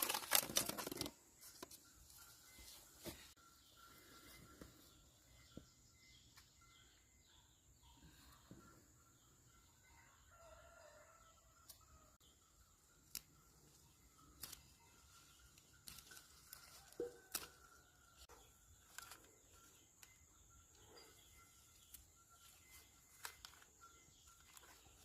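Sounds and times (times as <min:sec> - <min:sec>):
faint rooster crowing: 0:09.8 - 0:12.2.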